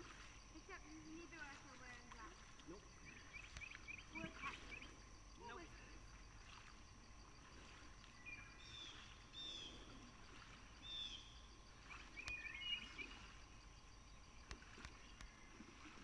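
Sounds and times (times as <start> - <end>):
bird chirping: 3.0 - 5.0, 8.1 - 10.1, 10.8 - 13.3
faint sharp clicks: 3.4 - 3.9, 12.2 - 12.5, 14.4 - 15.4.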